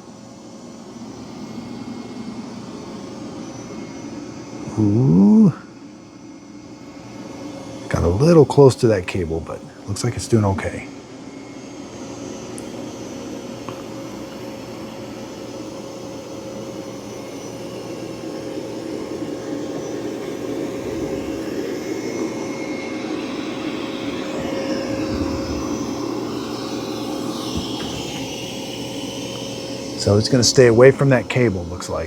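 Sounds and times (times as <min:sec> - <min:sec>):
robot vacuum whirring: 0:06.6 - 0:32.0.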